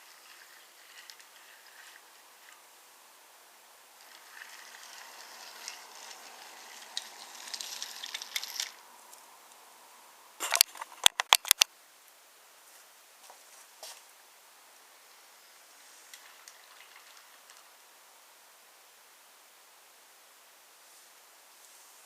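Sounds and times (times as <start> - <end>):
toy train rattling on wooden track: 0.0 - 2.7, 4.0 - 9.2, 10.4 - 11.7, 15.7 - 17.8
sharp wooden clacks: 10.4 - 11.7.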